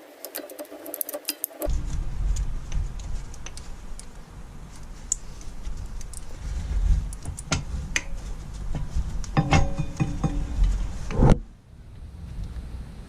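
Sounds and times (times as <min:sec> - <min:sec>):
metal tools clinking and knocking: 0:09.4 - 0:10.6.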